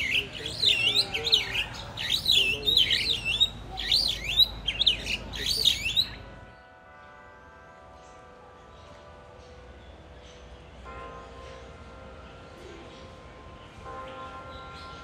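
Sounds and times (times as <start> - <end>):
bird calling loudly: 0.0 - 6.2.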